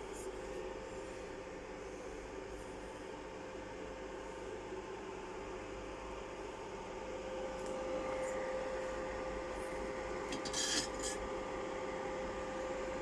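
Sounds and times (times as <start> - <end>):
metallic scrapes and clinks: 10.4 - 11.2.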